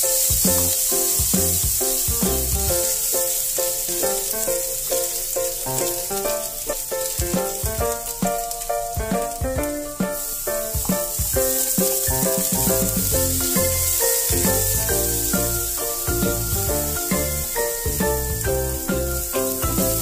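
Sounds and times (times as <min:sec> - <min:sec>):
spatula stirring in pan: 0:00.0 - 0:08.2
ginger and garlic sizzling in oil: 0:00.0 - 0:20.0
plucked melody background music: 0:00.0 - 0:20.0.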